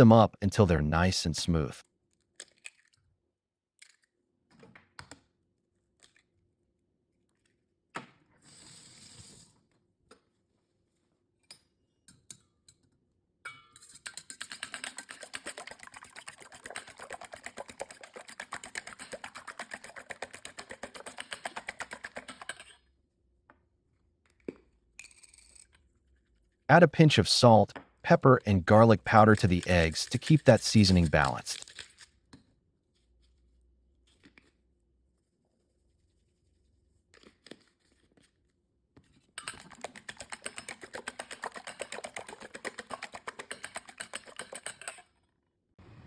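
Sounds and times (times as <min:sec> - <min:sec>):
eggs being cracked: 0:14.0 - 0:22.7, 0:28.2 - 0:32.1, 0:39.4 - 0:45.0
whisk clicking against bowl: 0:14.0 - 0:22.8, 0:28.1 - 0:31.9, 0:39.4 - 0:45.1.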